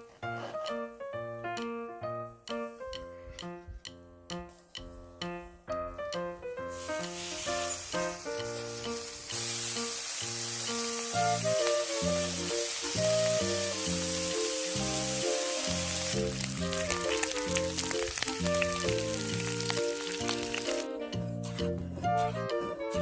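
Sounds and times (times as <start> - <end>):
plucked background music: 0.0 - 23.0
food sizzling in a pan: 6.7 - 20.9.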